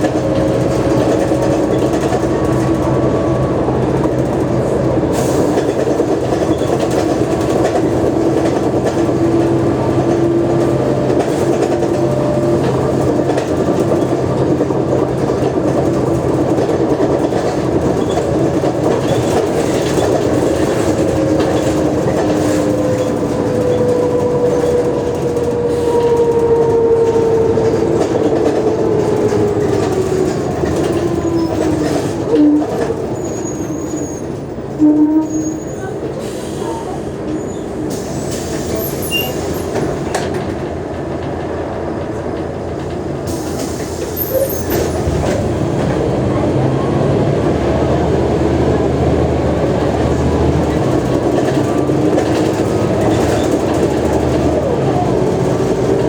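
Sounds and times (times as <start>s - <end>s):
bus engine whine: 0.0s - 56.0s
short squeals: 32.4s - 36.0s.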